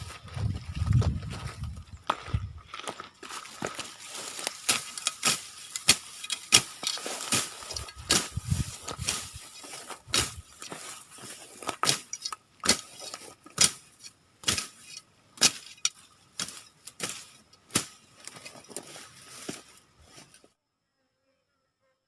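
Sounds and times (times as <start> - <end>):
sharp chopping strikes: 4.6 - 9.2, 10.1 - 10.4, 11.8 - 12.9, 13.6 - 14.8, 16.4 - 18.0.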